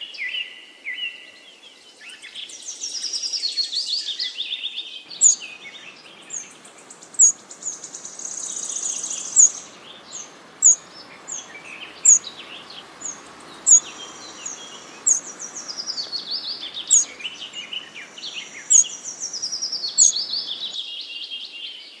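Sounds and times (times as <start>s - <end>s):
steady hiss: 5.0s - 20.8s
fast high bird trills: 5.1s - 20.8s
sharp high bird chirps: 5.1s - 20.8s.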